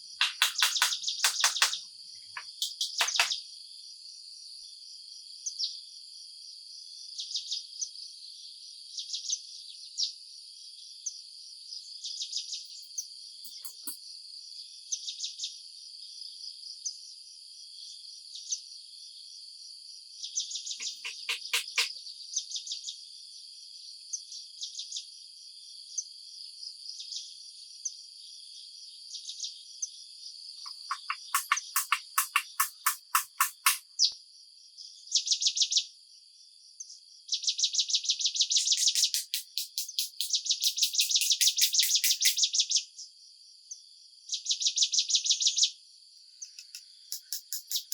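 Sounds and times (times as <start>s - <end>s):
rapid insect pulses: 0.0s - 1.8s, 2.4s - 3.4s, 12.7s - 14.0s, 20.8s - 22.0s, 30.6s - 34.1s, 38.4s - 42.8s, 46.4s - 47.9s
quick insect chirps: 0.0s - 3.6s, 12.5s - 14.1s, 20.7s - 22.0s, 30.6s - 34.1s, 38.2s - 42.8s, 46.2s - 47.9s
crickets and insects trilling: 30.6s - 33.8s, 38.5s - 42.6s.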